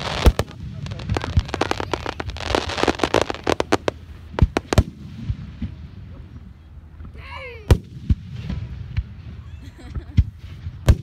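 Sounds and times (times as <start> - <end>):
fireworks crackling: 0.0 - 6.4, 7.1 - 11.0.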